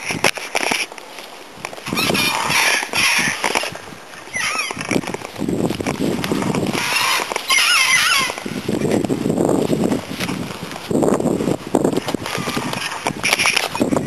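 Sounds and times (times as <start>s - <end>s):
camera handling noise: 0.1s - 3.8s, 4.6s - 8.5s, 12.0s - 13.8s
birds singing: 1.9s - 3.4s, 4.2s - 5.0s, 6.3s - 9.1s.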